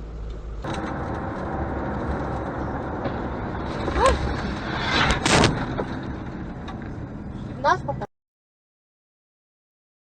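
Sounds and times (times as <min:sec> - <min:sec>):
car road and engine noise: 0:00.0 - 0:08.1
loud sudden bangs: 0:00.7 - 0:06.4.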